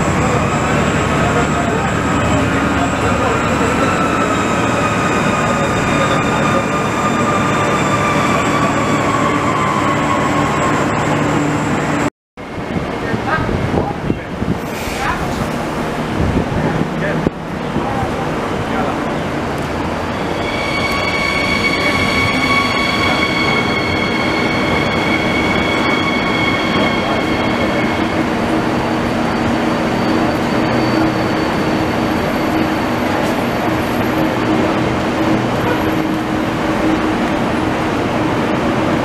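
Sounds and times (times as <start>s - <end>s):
high steady squeal: 0.0s - 12.1s, 19.8s - 37.7s
electric train rolling in: 0.0s - 39.0s.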